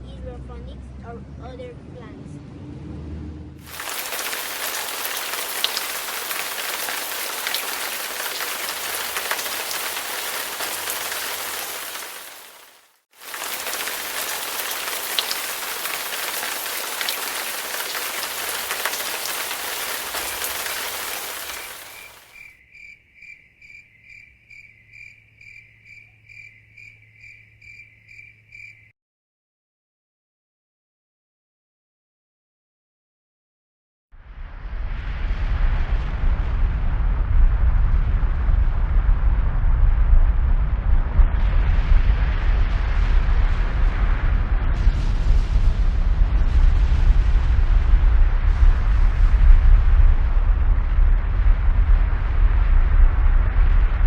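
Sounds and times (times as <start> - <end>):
heavy rain hiss: 3.6 - 22.4
crickets chirping: 13.3 - 28.9.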